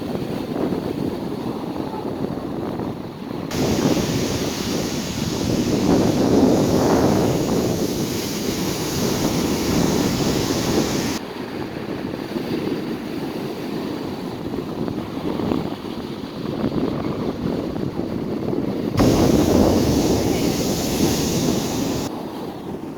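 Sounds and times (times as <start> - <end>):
wind buffeting microphone: 0.0 - 22.9
surf breaking on beach: 3.5 - 11.2, 19.0 - 22.2.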